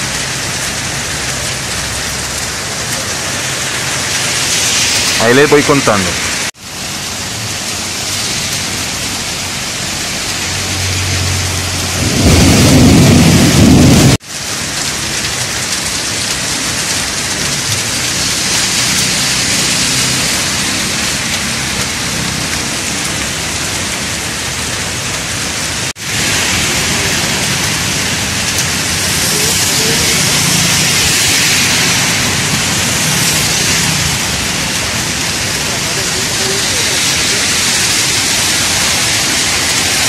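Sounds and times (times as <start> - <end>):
heavy rain on street: 0.0 - 40.0
loud low rumble: 10.5 - 14.2.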